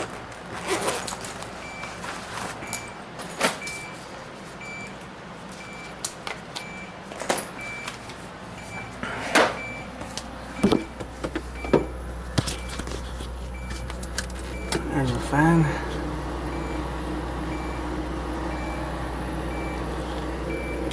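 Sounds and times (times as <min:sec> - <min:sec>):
fridge fan low hum: 0:00.0 - 0:20.9.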